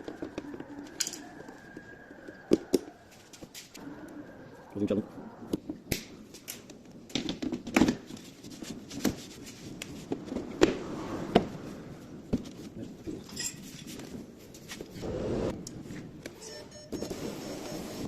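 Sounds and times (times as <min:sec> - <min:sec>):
hand tools clicking and clinking: 0:00.0 - 0:01.4, 0:13.2 - 0:14.0.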